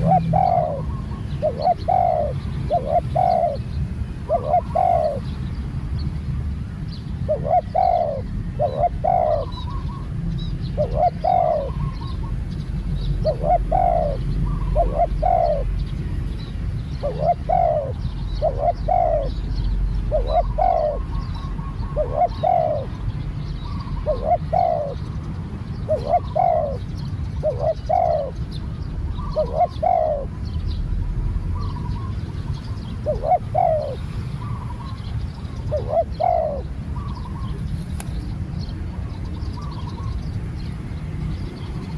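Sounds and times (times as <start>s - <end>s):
dove cooing: 0.0s - 5.3s, 7.2s - 10.1s, 10.7s - 12.4s, 13.2s - 15.9s, 17.0s - 25.2s, 25.8s - 28.4s, 29.1s - 30.5s, 31.6s - 38.1s.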